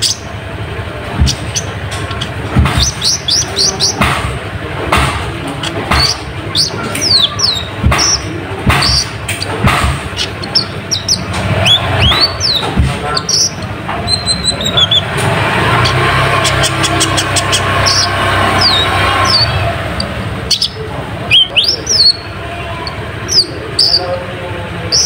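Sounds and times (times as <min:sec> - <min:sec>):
sunbird chirping: 0:00.0 - 0:00.4, 0:01.2 - 0:04.0, 0:05.6 - 0:09.5, 0:10.1 - 0:15.1, 0:15.8 - 0:24.2
low background rumble: 0:00.0 - 0:25.0
knocks: 0:01.2 - 0:14.1.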